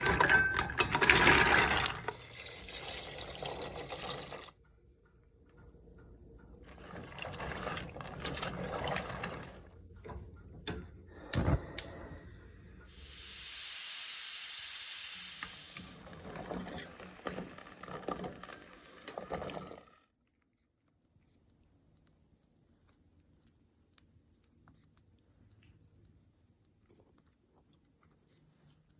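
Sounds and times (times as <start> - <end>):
water running in a sink: 0.0 - 4.6, 6.7 - 9.8, 12.9 - 20.0.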